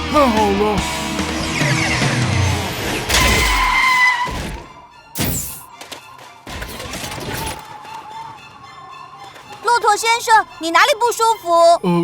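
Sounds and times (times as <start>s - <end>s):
music: 0.0s - 3.6s
high squeal: 1.4s - 5.7s.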